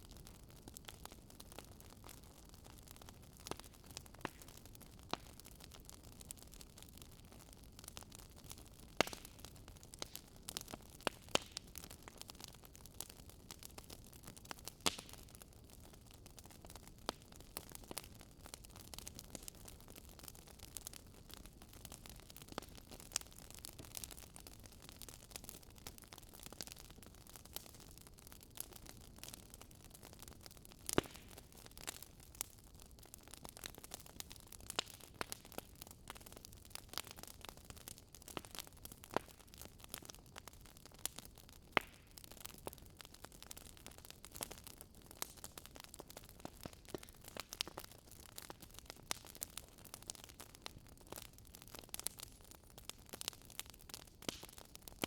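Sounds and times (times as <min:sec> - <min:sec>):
wood fire crackling: 0:00.0 - 0:55.0
fire pops: 0:08.5 - 0:12.3, 0:30.8 - 0:32.5, 0:33.4 - 0:37.1, 0:43.5 - 0:50.5, 0:53.1 - 0:54.6.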